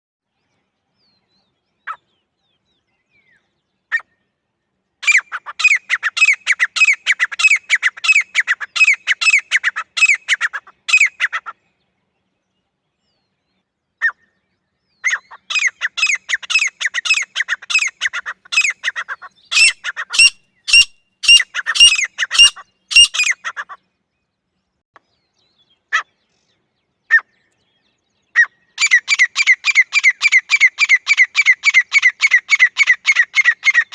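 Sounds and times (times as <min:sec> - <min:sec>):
bird shrill repeated calls: 0:05.0 - 0:11.6, 0:15.0 - 0:23.8, 0:27.1 - 0:27.3, 0:28.3 - 0:33.9.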